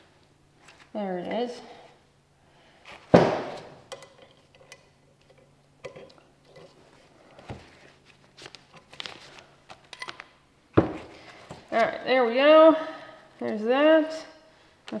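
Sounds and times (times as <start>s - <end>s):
sharp knock: 3.2s - 3.7s.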